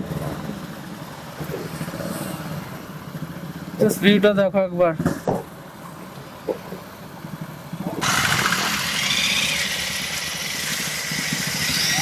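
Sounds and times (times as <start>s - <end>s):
motorcycle engines idling: 5.4s - 12.0s.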